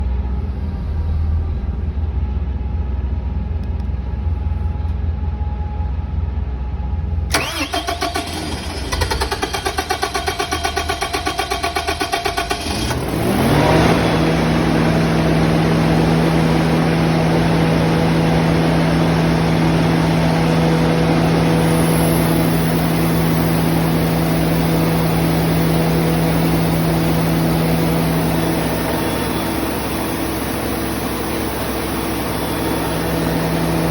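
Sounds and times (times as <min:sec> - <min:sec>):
low rumble: 0:00.0 - 0:07.2
engine starter cranking: 0:07.3 - 0:13.3
engine idling: 0:07.3 - 0:33.9.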